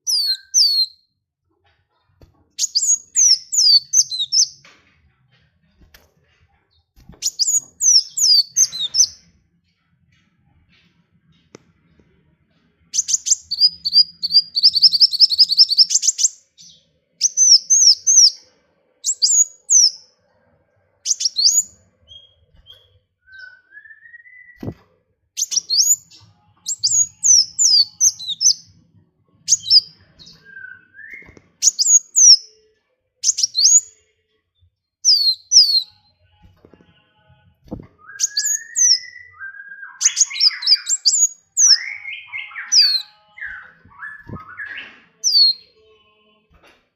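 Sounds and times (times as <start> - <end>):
songbird trilling and chirping: 0.0 - 1.0, 2.6 - 4.7, 7.2 - 9.2, 13.0 - 18.4, 19.0 - 20.0, 21.0 - 24.7, 25.4 - 28.7, 29.5 - 32.5, 33.2 - 33.9, 35.0 - 36.0, 37.7 - 45.7
bird rising whistles: 38.0 - 45.5.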